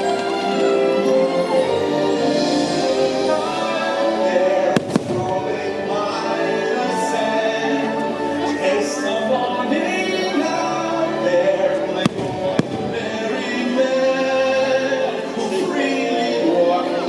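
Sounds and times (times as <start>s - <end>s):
music with singing: 0.0s - 17.0s
firework bangs: 4.7s - 5.8s, 12.0s - 13.6s.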